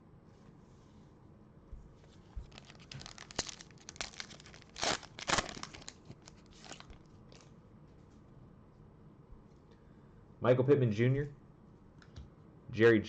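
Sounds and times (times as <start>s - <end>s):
foil wrapper crinkling: 2.4s - 7.5s
foil pack tearing: 2.5s - 7.4s.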